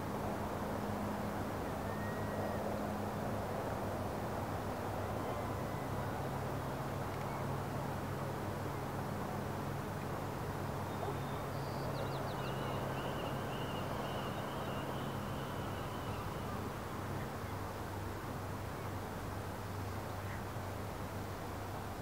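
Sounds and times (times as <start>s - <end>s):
outdoor noise: 0.0s - 22.0s
distant bird calls: 10.8s - 17.5s.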